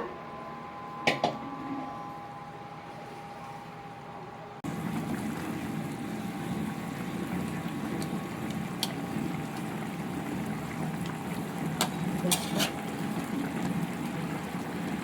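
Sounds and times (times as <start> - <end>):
sauce bubbling in a pot: 4.6 - 15.0.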